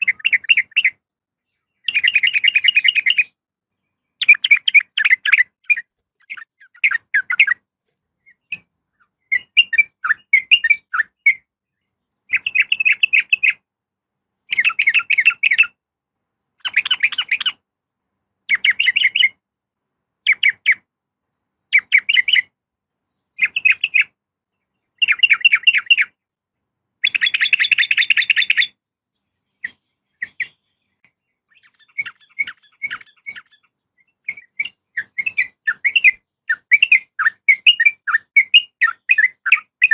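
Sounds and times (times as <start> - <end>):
bird chattering calls: 4.2 - 7.6, 12.3 - 13.6, 29.6 - 30.6, 31.5 - 39.9.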